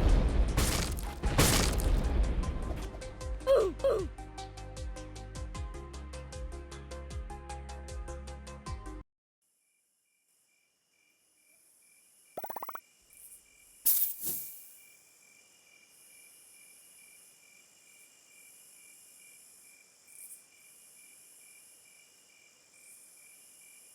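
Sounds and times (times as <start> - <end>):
insects chirping: 11.8 - 23.9.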